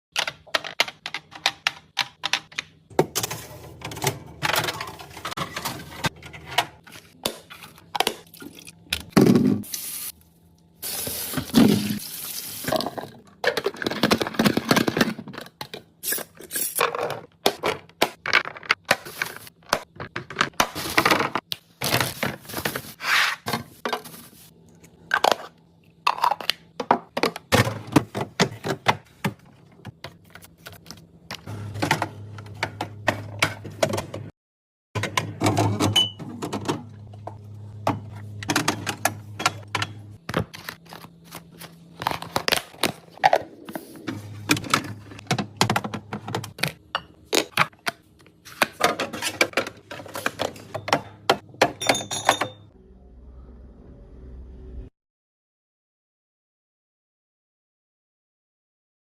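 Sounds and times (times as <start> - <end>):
containers and shelves clattering: 0.2 - 9.7, 10.8 - 34.3, 35.0 - 52.8.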